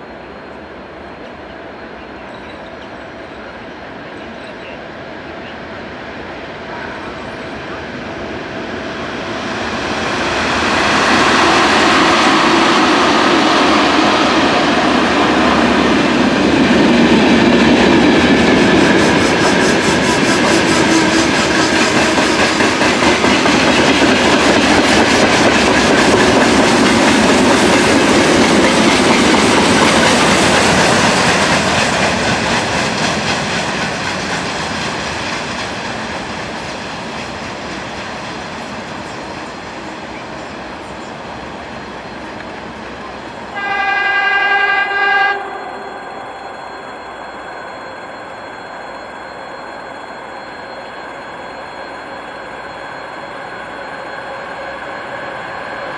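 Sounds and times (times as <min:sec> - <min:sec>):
train wheels rumbling: 0:00.0 - 0:55.9
train horn blast: 0:43.5 - 0:45.8.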